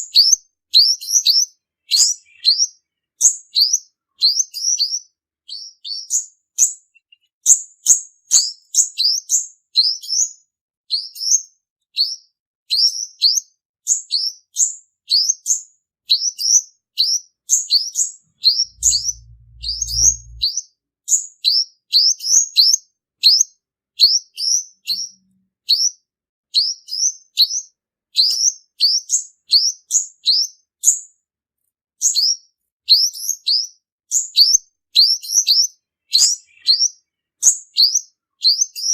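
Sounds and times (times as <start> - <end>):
sunbird singing: 0.0 - 7.5, 17.0 - 20.6, 34.4 - 38.9
low rumble: 18.4 - 20.5.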